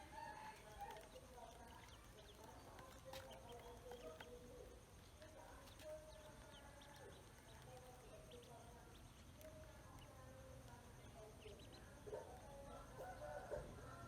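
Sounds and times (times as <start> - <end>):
ducklings peeping: 0.9 - 4.4, 5.6 - 9.4, 11.0 - 11.8.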